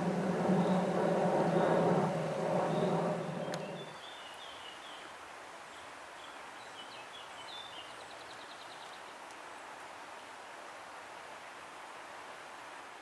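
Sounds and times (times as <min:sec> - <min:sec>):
small birds chirping and trilling: 0:00.0 - 0:04.6
outdoor background hiss: 0:00.0 - 0:13.0.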